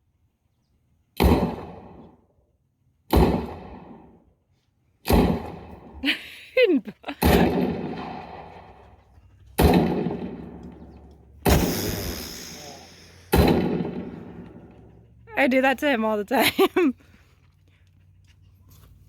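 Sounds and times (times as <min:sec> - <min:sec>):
echoing gunshots: 0:01.2 - 0:02.1, 0:07.2 - 0:08.7, 0:09.6 - 0:10.8, 0:11.4 - 0:14.7.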